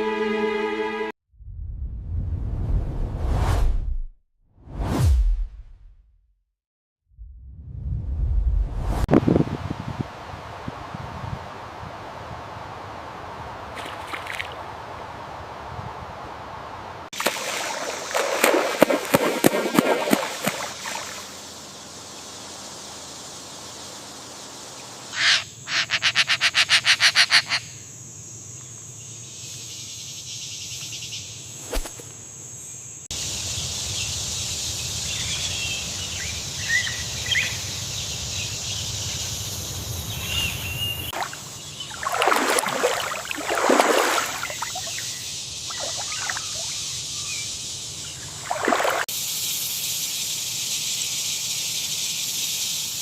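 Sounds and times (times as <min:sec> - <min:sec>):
water splashing: 0:13.7 - 0:14.6, 0:17.2 - 0:21.5, 0:41.1 - 0:46.8, 0:48.2 - 0:49.1
steady background hiss: 0:49.2 - 0:53.0.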